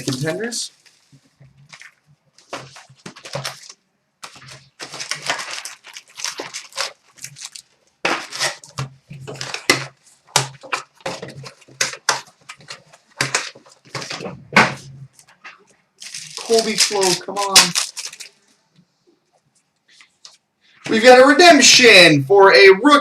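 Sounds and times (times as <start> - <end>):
foil wrappers tearing and crinkling: 0.0 - 14.2, 16.0 - 18.4.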